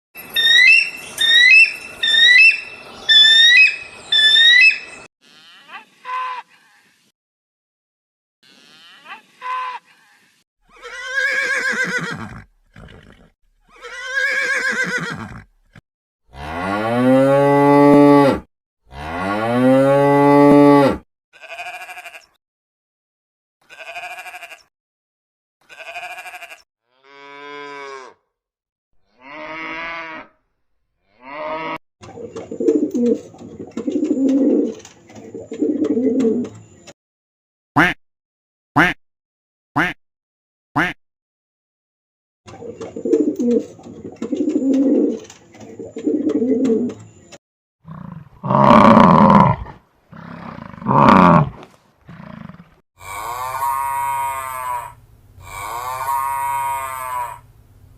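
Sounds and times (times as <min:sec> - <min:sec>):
long low farm-animal calls: 0:00.4 - 0:07.1, 0:08.4 - 0:15.5, 0:23.7 - 0:24.7, 0:25.6 - 0:28.2, 0:31.1 - 0:31.8, 0:47.9 - 0:57.5.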